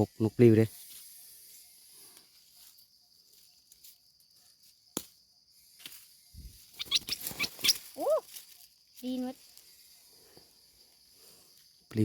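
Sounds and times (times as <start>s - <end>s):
insects buzzing: 0.0s - 12.0s
quick rising chirps: 6.3s - 8.2s.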